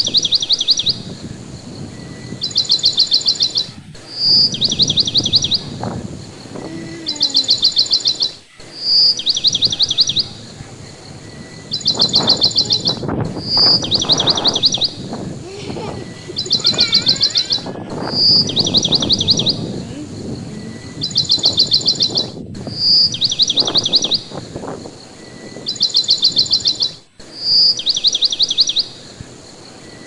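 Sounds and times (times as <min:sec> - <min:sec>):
wind rushing: 0:00.0 - 0:26.9
songbird trilling song: 0:00.0 - 0:30.0
faint warbling bird call: 0:06.4 - 0:10.4, 0:11.8 - 0:24.3.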